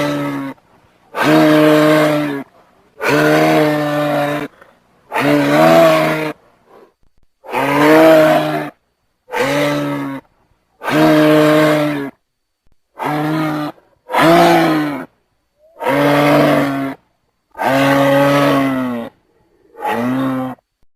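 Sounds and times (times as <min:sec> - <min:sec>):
giraffe calling: 0:13.0 - 0:20.6.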